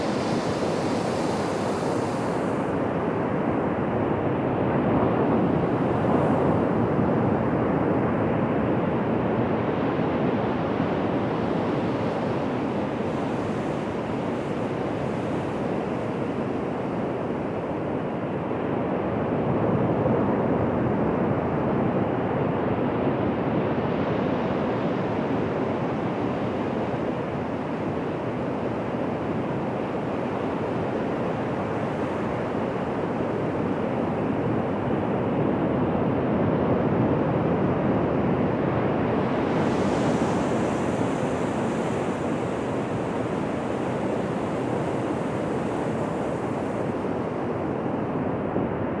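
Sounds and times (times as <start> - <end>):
ocean surf washing onto beach: 0.0 - 3.3, 39.0 - 47.9.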